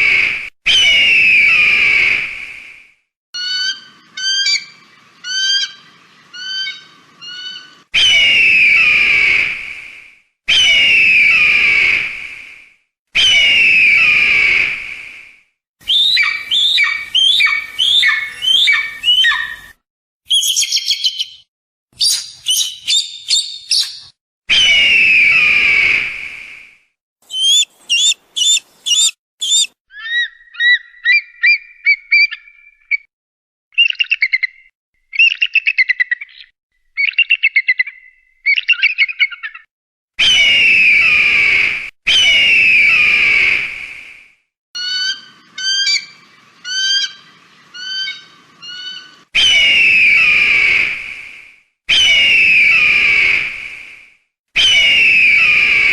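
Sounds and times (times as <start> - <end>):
hawk screaming and chattering: 27.2 - 29.8.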